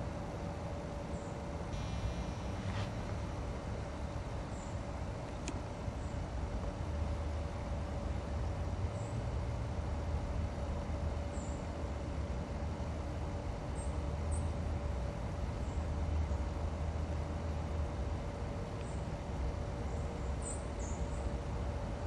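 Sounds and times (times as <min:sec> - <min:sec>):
constant hum: 0:00.0 - 0:22.0
faint high chirps: 0:01.8 - 0:03.2.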